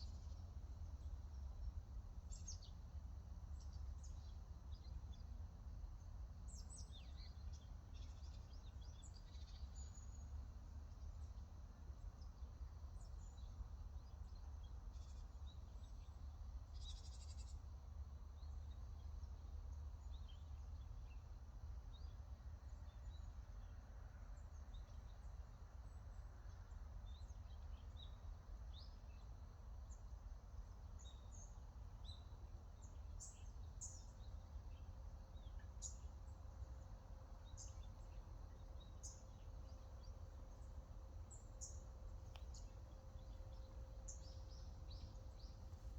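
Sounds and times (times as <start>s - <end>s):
small birds chirping: 31.0s - 45.9s.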